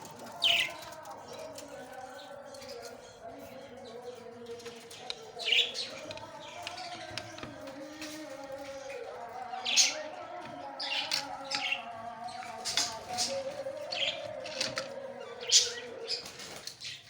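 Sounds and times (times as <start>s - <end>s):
budgerigars chirping: 8.9s - 17.0s.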